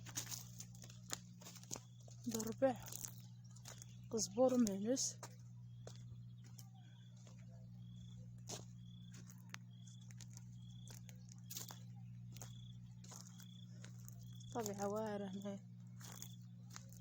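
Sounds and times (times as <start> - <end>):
steady low hum: 0.0 - 17.0
small animal chirping: 6.2 - 15.0.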